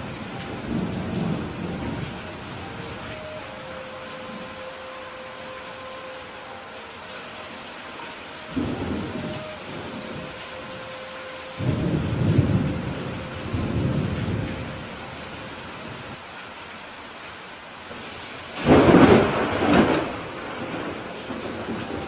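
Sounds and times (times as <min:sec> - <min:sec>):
thunder rumbling: 0:00.0 - 0:04.7, 0:08.5 - 0:16.2, 0:18.6 - 0:22.0
steady rain: 0:00.0 - 0:22.0
sharp thunderclap: 0:18.6 - 0:21.8.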